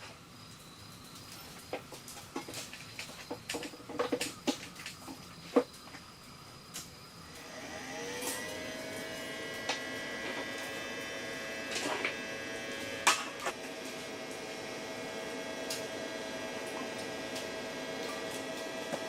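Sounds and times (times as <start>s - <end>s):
small motor humming: 7.3s - 19.0s.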